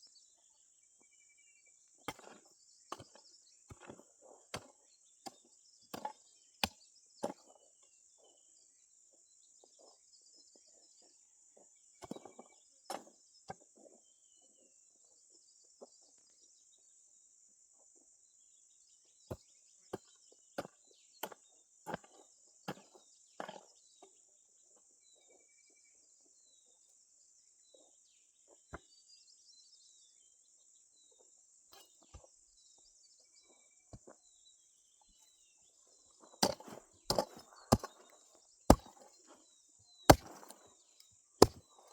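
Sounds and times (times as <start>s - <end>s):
hand tool chopping strikes: 36.4s - 38.0s, 38.7s - 39.1s, 40.1s - 40.6s, 41.4s - 41.6s.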